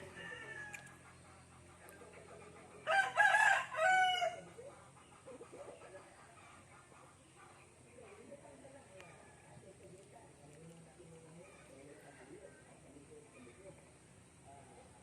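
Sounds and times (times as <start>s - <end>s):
rooster crowing: 0.0s - 0.9s, 2.8s - 4.5s.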